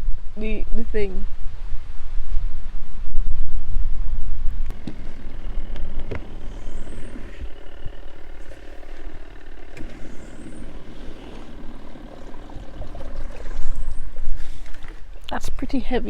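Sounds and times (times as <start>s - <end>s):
faint rising squeak: 4.6s - 15.3s
washing machine motor running: 4.6s - 15.4s.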